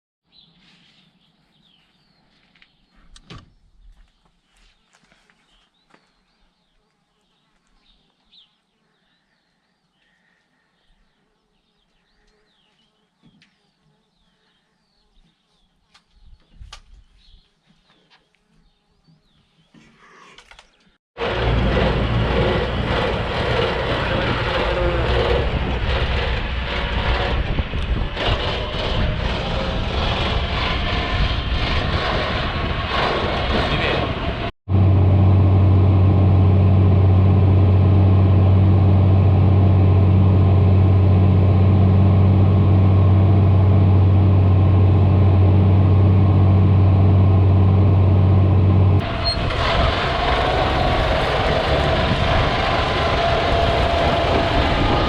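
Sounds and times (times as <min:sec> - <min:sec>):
tractor diesel engine running: 0:21.2 - 0:55.0.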